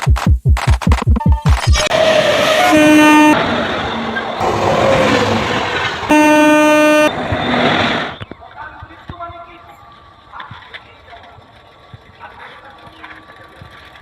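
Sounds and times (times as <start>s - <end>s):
train rushing past: 1.6s - 14.0s
train horn blasts: 1.9s - 3.6s, 6.1s - 7.7s.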